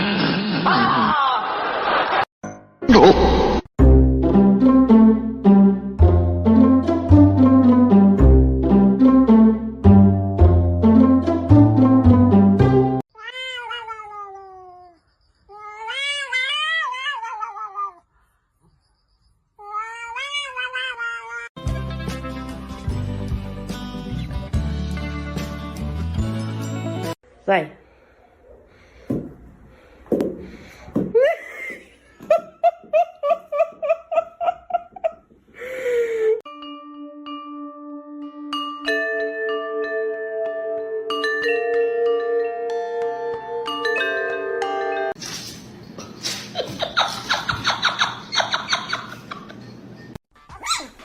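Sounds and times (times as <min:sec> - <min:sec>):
music: 0:03.8 - 0:13.0, 0:21.6 - 0:27.2, 0:36.5 - 0:45.2
cat meowing: 0:13.2 - 0:14.9, 0:15.5 - 0:18.0
chime-like music: 0:36.5 - 0:45.2.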